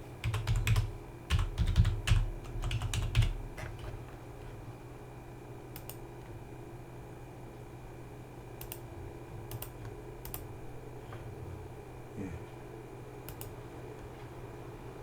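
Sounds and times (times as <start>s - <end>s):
steady electrical hum: 0.0s - 15.0s
computer keyboard clicks: 0.2s - 3.9s, 5.7s - 6.0s, 8.6s - 8.9s, 9.5s - 10.5s, 13.3s - 13.6s.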